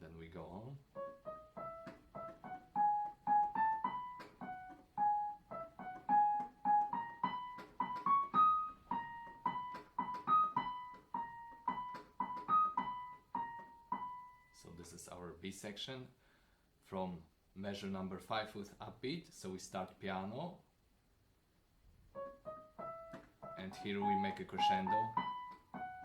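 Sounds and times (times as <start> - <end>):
soft piano melody: 0.0 - 14.6, 22.1 - 26.0.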